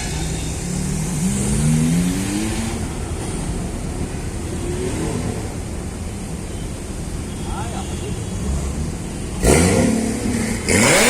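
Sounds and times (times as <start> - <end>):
car engine accelerating: 9.4 - 11.0.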